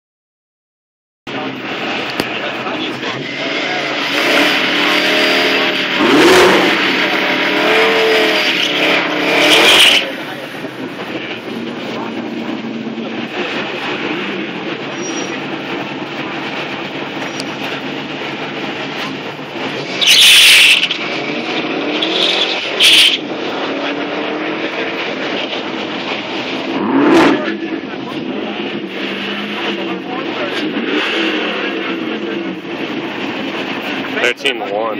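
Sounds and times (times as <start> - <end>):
car engines revving: 1.3 - 34.9
car launching at full throttle: 1.4 - 10.5, 16.9 - 34.2.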